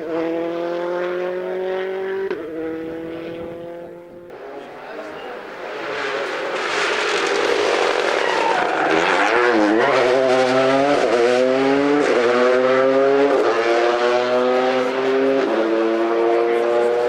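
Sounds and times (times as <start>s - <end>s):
rally car engine accelerating: 0.0s - 17.0s.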